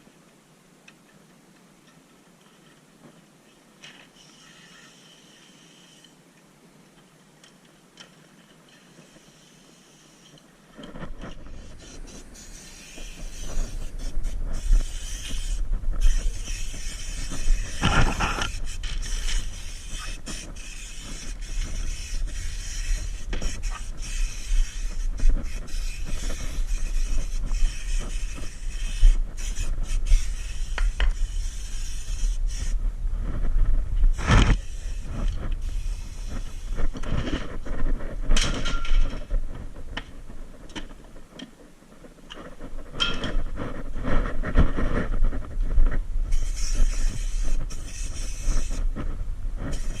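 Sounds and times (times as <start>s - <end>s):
knocks and scraping: 10.2s - 50.0s
steady low hum: 10.3s - 50.0s.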